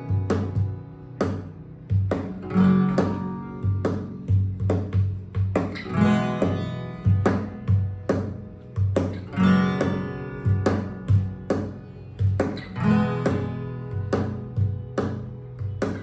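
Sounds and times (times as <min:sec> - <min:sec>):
guitar plucked and strummed: 0:00.0 - 0:16.0.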